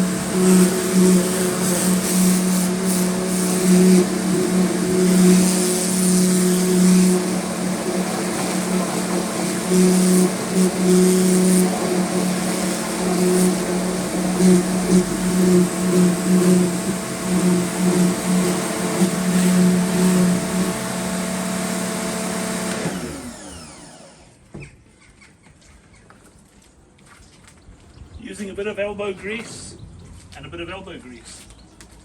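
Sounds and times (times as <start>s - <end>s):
water jet hissing: 0.0s - 23.0s
pressure washer motor hum: 0.0s - 24.4s.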